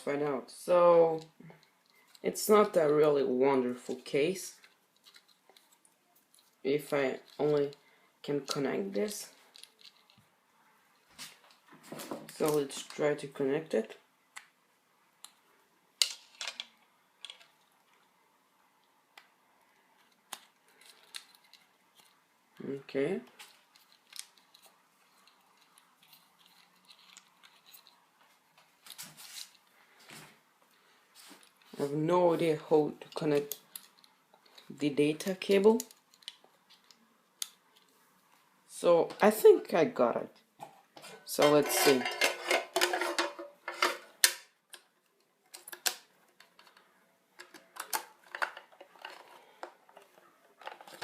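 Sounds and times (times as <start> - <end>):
plastic and metal parts clicking: 9.5 - 10.2, 16.0 - 18.1, 19.1 - 22.2, 23.4 - 28.0, 33.0 - 34.7, 35.6 - 37.9, 41.9 - 51.0.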